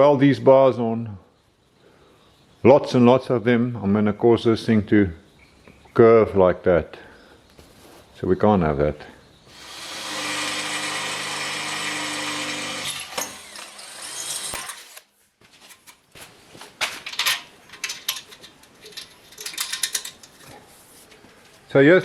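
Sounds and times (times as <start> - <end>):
power drill running: 9.5 - 15.0
metal parts clicking and knocking: 16.8 - 21.2.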